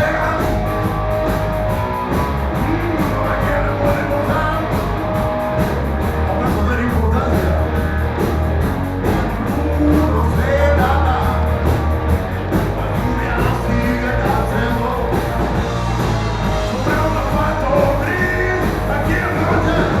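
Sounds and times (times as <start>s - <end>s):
person singing: 0.0s - 1.0s, 2.1s - 5.4s, 9.4s - 11.8s, 12.8s - 15.5s, 16.7s - 20.0s
bass line: 0.0s - 20.0s
drums: 0.0s - 20.0s
electric guitar: 0.0s - 20.0s.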